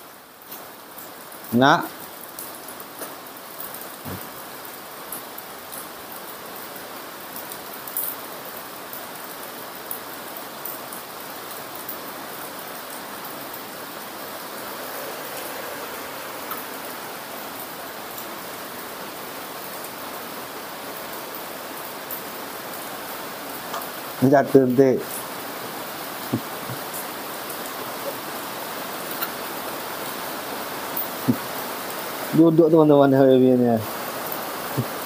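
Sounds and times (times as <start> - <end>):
heavy rain hissing: 0.0 - 35.0
raindrop ticks: 23.6 - 24.0, 26.2 - 27.8, 29.0 - 30.2.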